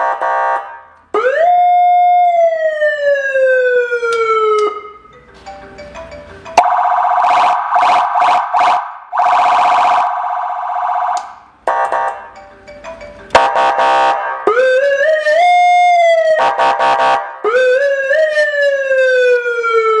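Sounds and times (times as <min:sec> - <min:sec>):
electronic siren: 0:06.6 - 0:12.3.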